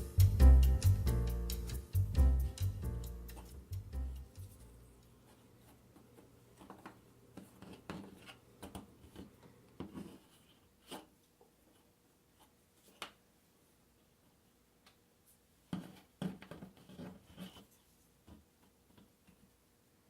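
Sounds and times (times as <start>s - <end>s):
music track: 0.0s - 4.8s.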